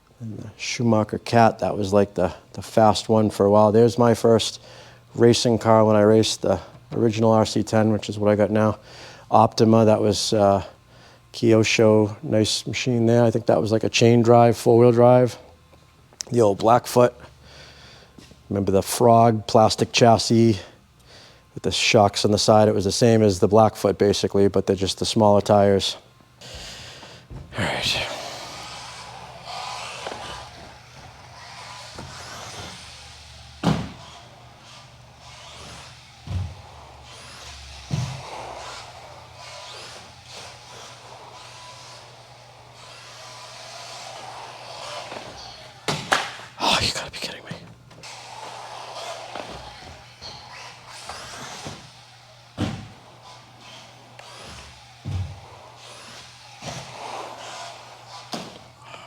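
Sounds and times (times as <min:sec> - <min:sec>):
steady low hum: 0:00.0 - 0:59.0
electric rc buggy running: 0:28.1 - 0:45.9, 0:48.0 - 0:52.2, 0:53.0 - 0:59.0.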